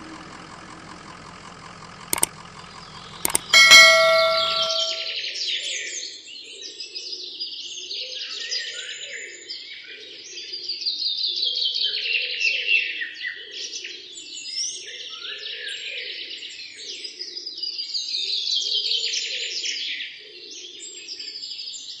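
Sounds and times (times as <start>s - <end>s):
falling bird trills: 3.5s - 5.1s.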